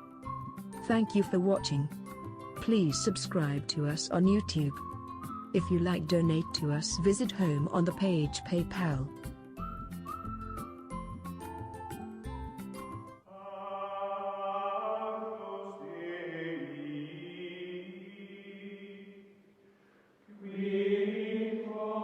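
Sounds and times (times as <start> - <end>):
choir-like held chords: 13.3 - 19.2, 20.3 - 22.0.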